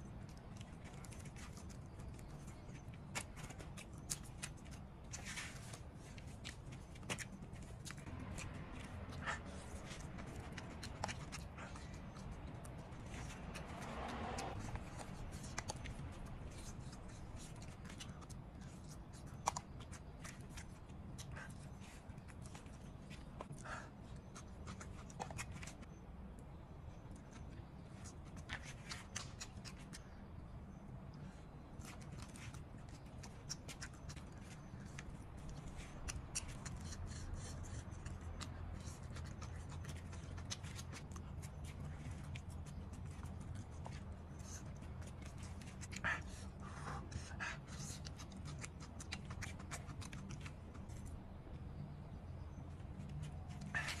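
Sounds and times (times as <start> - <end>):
chewing and lip-smacking: 0.0 - 26.0, 27.0 - 54.0
person chewing meat: 31.7 - 51.2.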